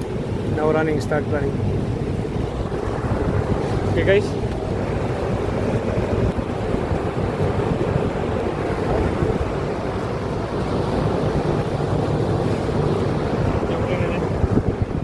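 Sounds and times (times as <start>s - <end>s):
air conditioner fan whooshing: 0.0s - 15.0s.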